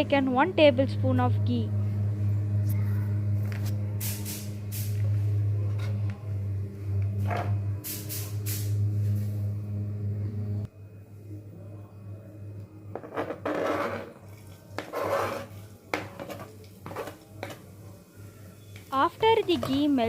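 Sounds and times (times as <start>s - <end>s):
low hum: 0.0s - 13.2s.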